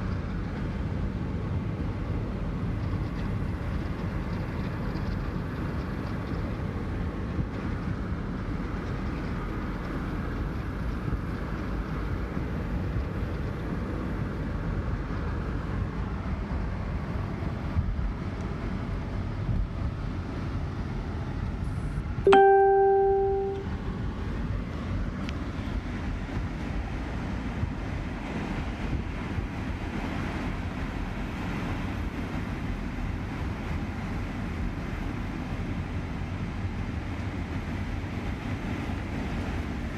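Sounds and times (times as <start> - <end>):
vehicle interior rumble: 0.0 - 39.9
electronic ding: 22.3 - 23.7.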